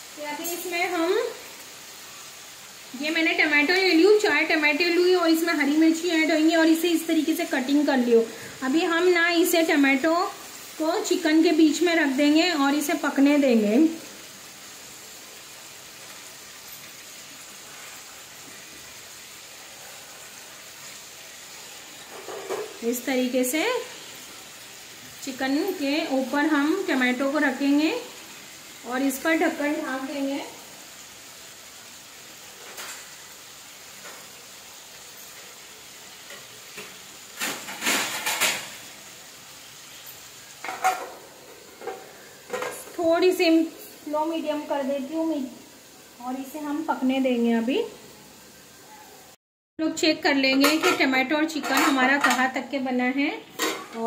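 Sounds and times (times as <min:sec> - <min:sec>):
chicken frying in oil: 0:00.0 - 0:54.0
food sizzling in a pan: 0:00.0 - 0:54.0
metal lid clattering: 0:53.6 - 0:54.0.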